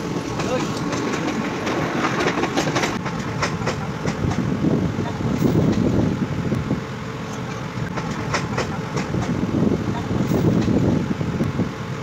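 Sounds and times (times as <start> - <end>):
rumble of wheels on rails: 0.0 - 12.0.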